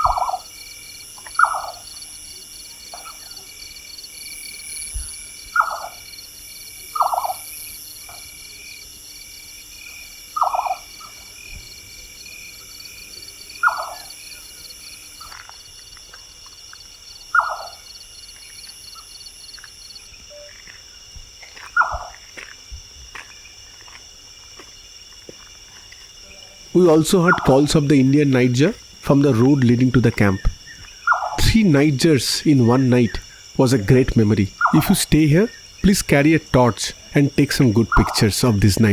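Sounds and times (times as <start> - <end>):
nightjar quavering call: 0.0 - 0.5, 1.3 - 2.0, 5.5 - 6.1, 6.9 - 7.5, 10.4 - 11.2, 13.6 - 14.5, 17.3 - 17.9, 26.8 - 38.9
night insects trilling: 0.0 - 38.9.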